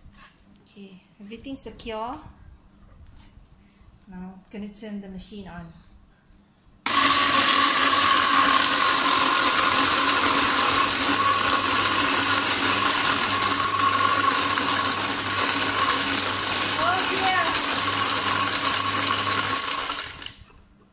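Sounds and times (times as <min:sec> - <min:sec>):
ice crusher grinding: 0:06.9 - 0:20.4.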